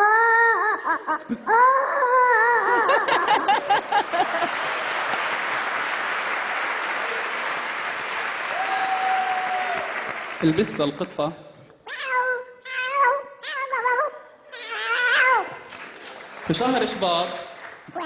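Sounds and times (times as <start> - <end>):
person imitating baby crying: 0.0 - 3.4, 11.9 - 15.7
audience applause: 3.5 - 10.8, 15.7 - 18.0.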